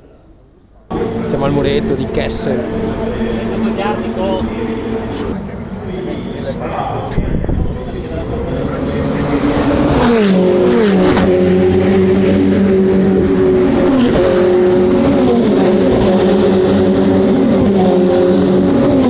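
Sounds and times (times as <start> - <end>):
race car engines running: 0.9 - 19.0.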